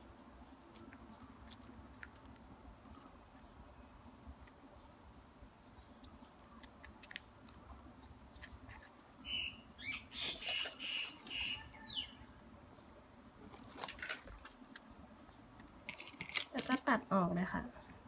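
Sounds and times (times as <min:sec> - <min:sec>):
bird chirping: 0:09.2 - 0:13.0.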